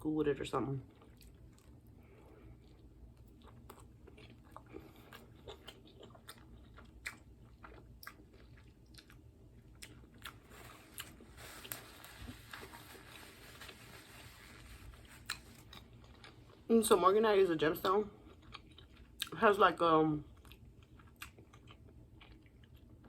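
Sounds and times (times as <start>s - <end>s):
close chewing with mouth clicks: 0.8s - 11.2s, 15.2s - 16.7s, 17.8s - 19.4s, 20.2s - 23.0s.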